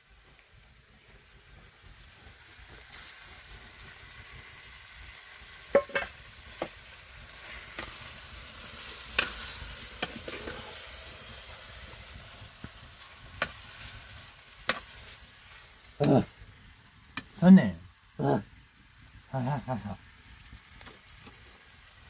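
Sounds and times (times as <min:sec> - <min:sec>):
food sizzling in a pan: 0:00.0 - 0:22.0.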